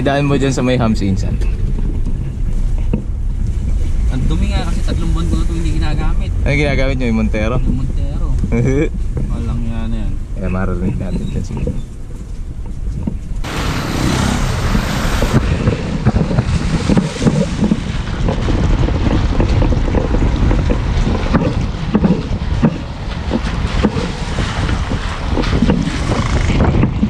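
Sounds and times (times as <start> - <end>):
road and wind rumble: 0.0 - 27.0
suspension clunking: 10.2 - 27.0.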